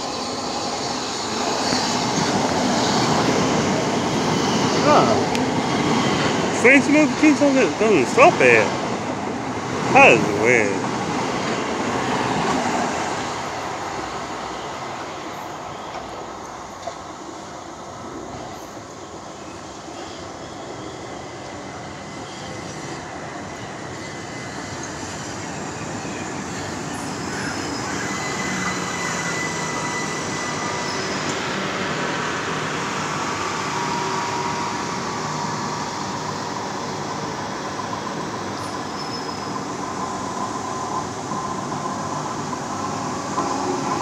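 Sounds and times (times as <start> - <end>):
electric train rumbling past: 0.0 - 44.0.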